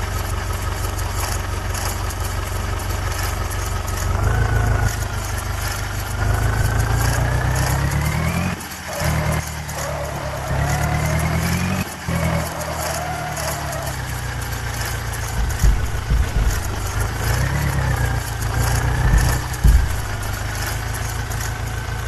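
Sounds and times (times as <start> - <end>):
tractor diesel engine revving: 0.0 - 22.0.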